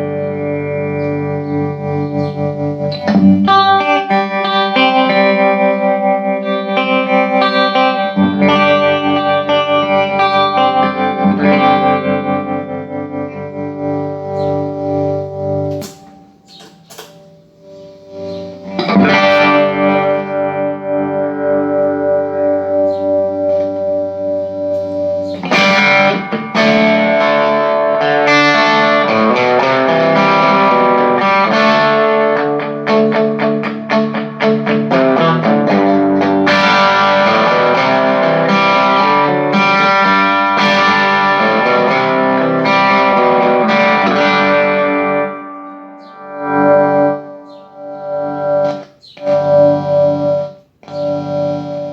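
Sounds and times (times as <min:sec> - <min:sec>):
electric guitar chords: 0:00.0 - 0:51.9
picked guitar notes: 0:00.0 - 0:51.9
muted guitar string clicks: 0:15.7 - 0:17.4.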